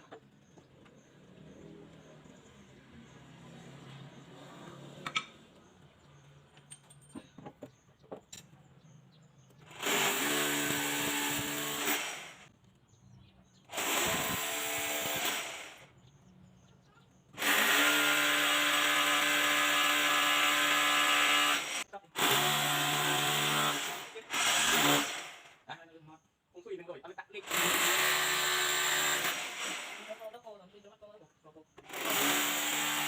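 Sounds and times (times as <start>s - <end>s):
power tool whining: 9.5s - 12.5s, 13.7s - 15.9s, 17.3s - 25.6s, 27.4s - 30.4s, 31.8s - 33.0s.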